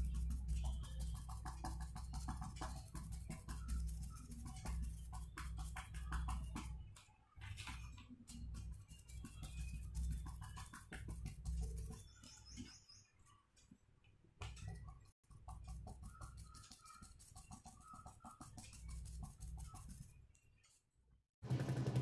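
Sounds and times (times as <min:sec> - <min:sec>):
paintbrush tapping on paper: 0:00.0 - 0:07.0, 0:07.6 - 0:12.7, 0:14.4 - 0:20.2
birds chirping: 0:00.0 - 0:13.7.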